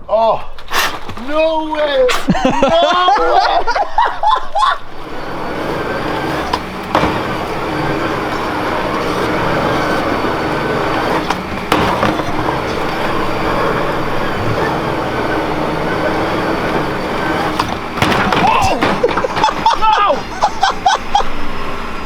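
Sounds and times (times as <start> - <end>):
vehicle running drone: 4.9 - 22.0.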